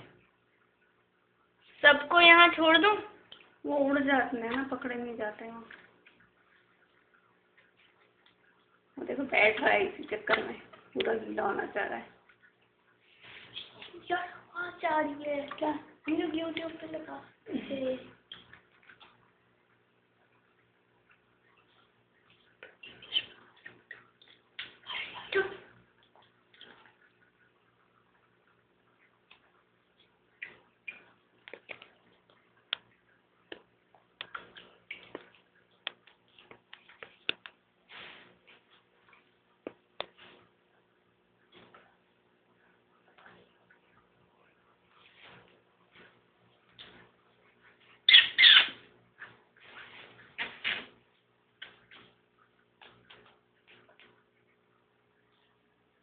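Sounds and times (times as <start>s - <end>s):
budgerigar chirping: 48.1s - 48.8s.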